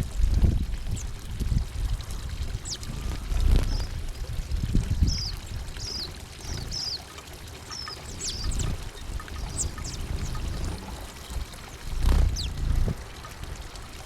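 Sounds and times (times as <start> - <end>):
low background rumble: 0.0 - 7.0, 7.7 - 14.0
songbirds chirping: 1.8 - 14.0.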